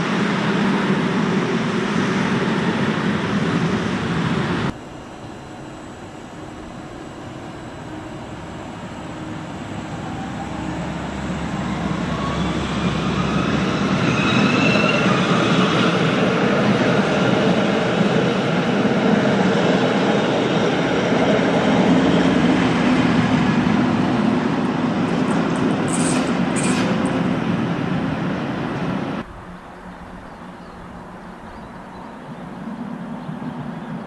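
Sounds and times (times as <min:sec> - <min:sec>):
train wheels rumbling on rail: 0:00.0 - 0:34.0
high squeals: 0:07.8 - 0:16.0.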